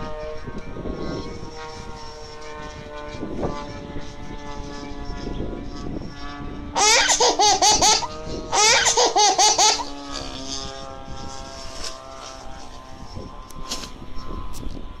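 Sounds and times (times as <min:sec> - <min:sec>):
steady background hum: 0:00.0 - 0:15.0
person laughing hard: 0:06.8 - 0:09.9.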